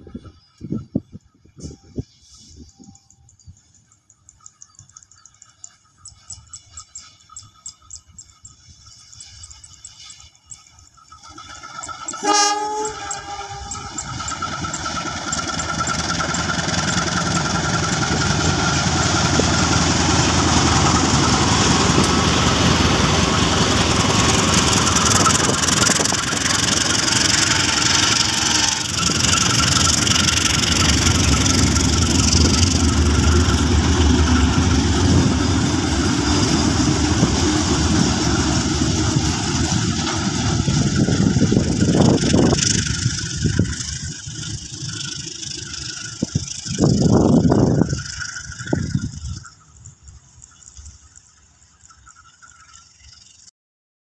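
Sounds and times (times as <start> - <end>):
locomotive horn blast: 12.2 - 14.0, 27.5 - 29.2
diesel engine running: 13.3 - 49.3.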